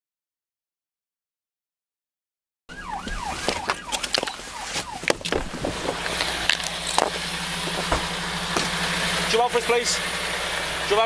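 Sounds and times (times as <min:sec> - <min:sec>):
police siren wailing: 0:02.7 - 0:08.8
vehicle engine idling: 0:04.4 - 0:11.0
sharp knocks and clicks: 0:06.9 - 0:08.8.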